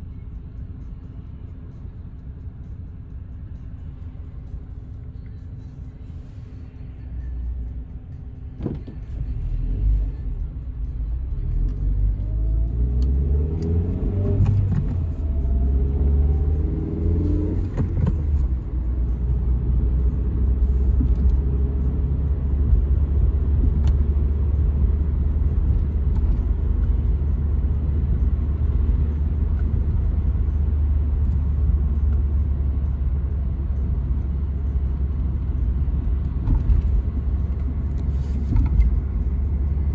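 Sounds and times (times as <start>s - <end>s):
road rumble: 0.0s - 39.9s
car engine pulling away: 8.5s - 39.9s.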